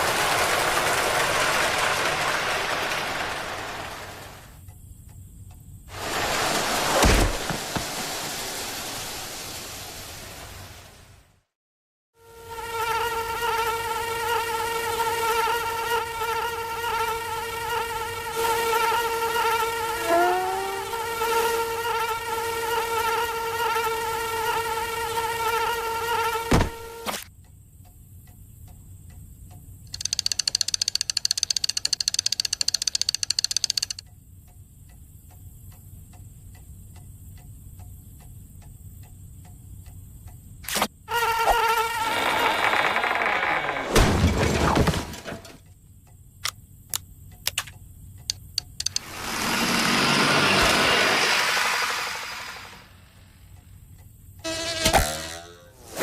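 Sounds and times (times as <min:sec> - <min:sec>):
cartoon insect buzzing: 0:12.2 - 0:27.2, 0:29.9 - 0:34.0, 0:40.7 - 0:44.0, 0:48.7 - 0:52.9, 0:54.4 - 0:56.0
thin high whine: 0:19.9 - 0:21.2
soft regular ticking: 0:27.4 - 0:40.6, 0:45.6 - 0:49.1, 0:53.4 - 0:54.4
gliding squeaks: 0:41.9 - 0:44.0.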